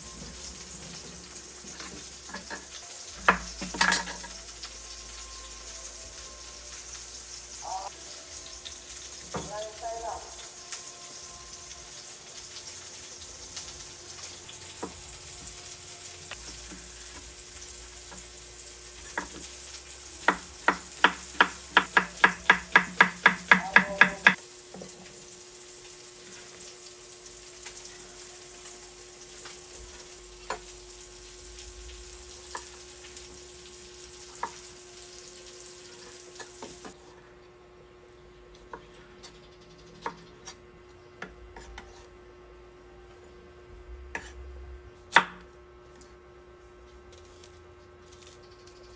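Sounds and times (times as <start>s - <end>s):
food sizzling in a frying pan: 0.0s - 37.1s.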